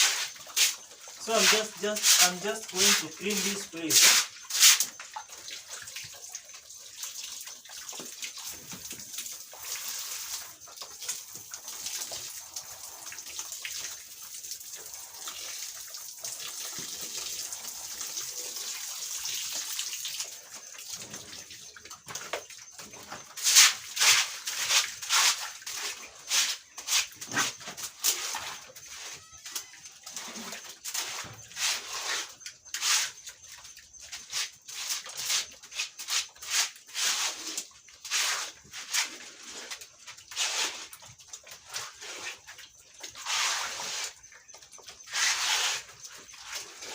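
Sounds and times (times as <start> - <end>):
quick scrubbing strokes: 0.0 - 4.9, 23.4 - 29.1, 30.9 - 33.3, 34.2 - 39.7, 43.2 - 44.2, 45.0 - 46.9
water hissing: 0.0 - 5.0.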